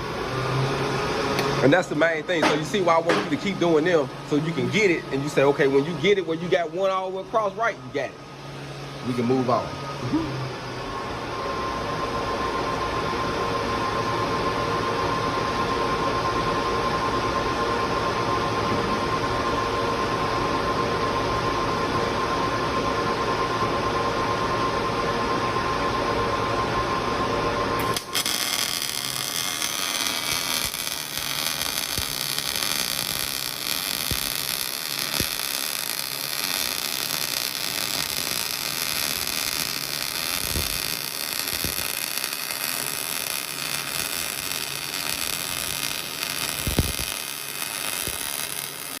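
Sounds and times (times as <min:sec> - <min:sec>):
welding arc pops: 0:02.4 - 0:03.6, 0:27.8 - 0:49.0
welding arc crackling: 0:27.8 - 0:49.0.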